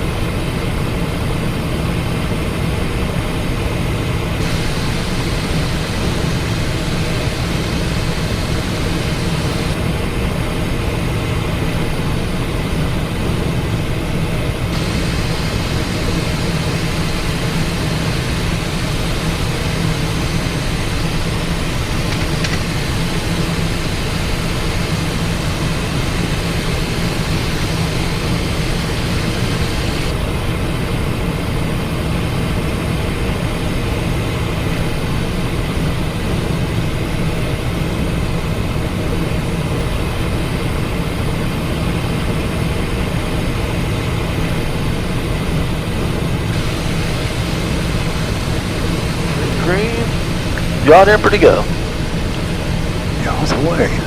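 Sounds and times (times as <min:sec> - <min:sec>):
low jet engine hum: 0:00.0 - 0:54.0
rush of airflow: 0:04.4 - 0:10.0, 0:14.7 - 0:30.7, 0:46.4 - 0:50.9.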